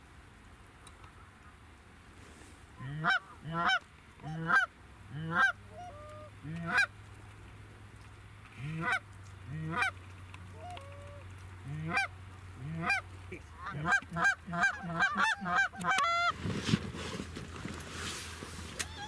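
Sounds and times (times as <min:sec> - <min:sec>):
goose honking: 0:02.8 - 0:06.9, 0:08.6 - 0:16.3.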